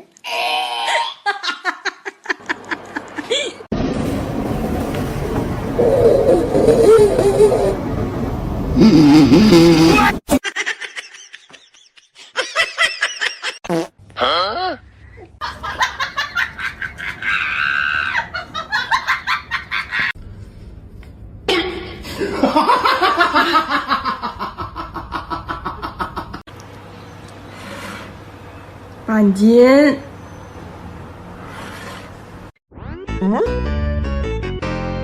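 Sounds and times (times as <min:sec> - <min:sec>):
people laughing: 0:01.3 - 0:03.7.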